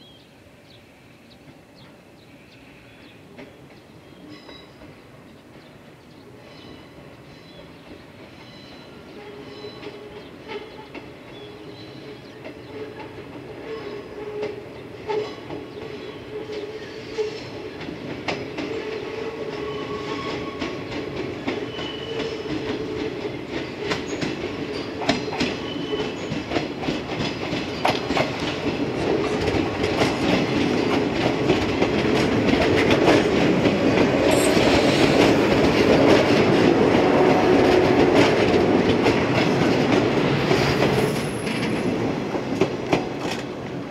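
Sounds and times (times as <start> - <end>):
train hum: 0.0 - 43.9
train wheels clicking: 7.4 - 43.8.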